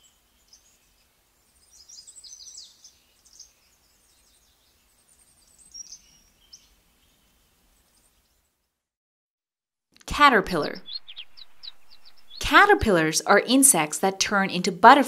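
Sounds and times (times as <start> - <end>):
faint bird chirps: 0.0 - 8.6, 10.6 - 12.6.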